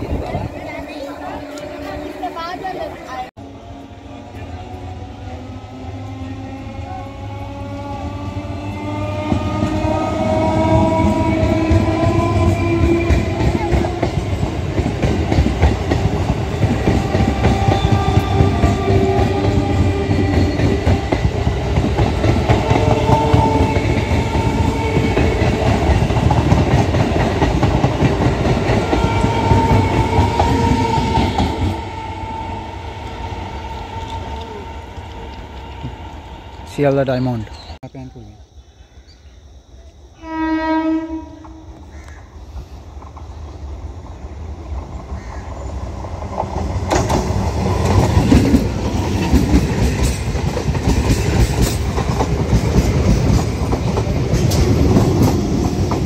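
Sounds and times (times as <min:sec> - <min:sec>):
train horn: 0:00.8 - 0:14.2, 0:16.9 - 0:21.3, 0:22.3 - 0:25.9, 0:28.5 - 0:32.8, 0:33.8 - 0:35.1, 0:40.2 - 0:41.9
train wheel clatter: 0:10.6 - 0:31.8, 0:44.7 - 0:56.0.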